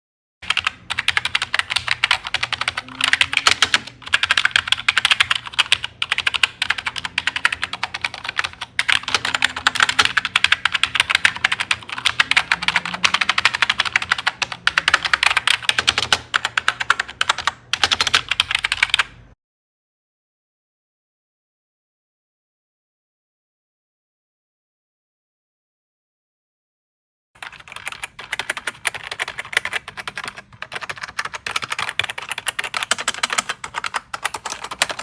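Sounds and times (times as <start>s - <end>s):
fast typing on keyboard: 0.4s - 19.3s, 27.4s - 35.0s.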